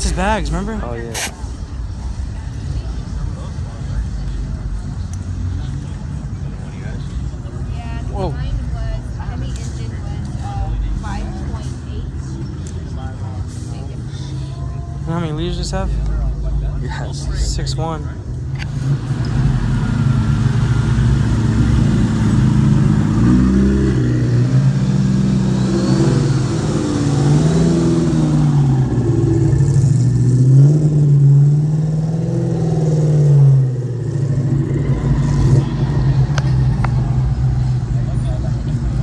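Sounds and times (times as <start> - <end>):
car engine revving: 18.6 - 39.0.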